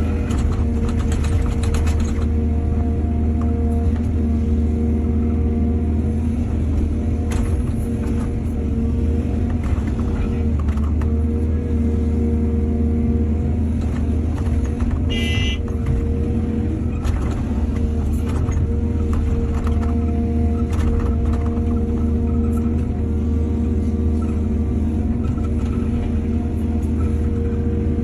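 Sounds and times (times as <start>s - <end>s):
excavator diesel engine running: 0.0s - 28.0s
knocks and clatter: 0.1s - 2.5s, 9.4s - 11.2s, 13.8s - 16.2s, 16.8s - 23.0s.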